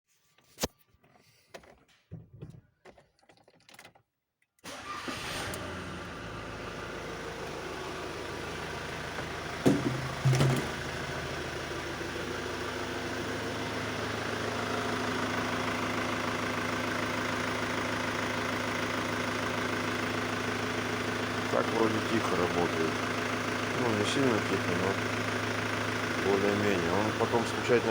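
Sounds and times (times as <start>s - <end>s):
vehicle engine starting and idling: 4.6s - 27.9s
short loud knocks: 9.6s - 10.9s.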